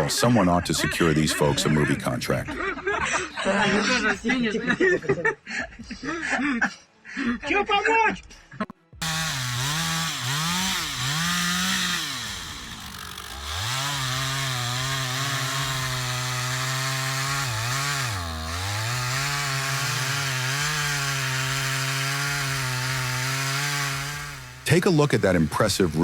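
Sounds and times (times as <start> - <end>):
chainsaw revving: 9.0 - 26.0.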